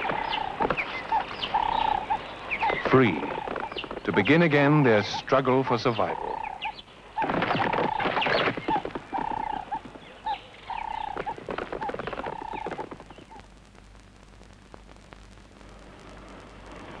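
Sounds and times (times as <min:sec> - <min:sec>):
bird whistling and chattering: 0:00.0 - 0:04.3
patter of clicks: 0:00.0 - 0:05.4, 0:06.1 - 0:15.4.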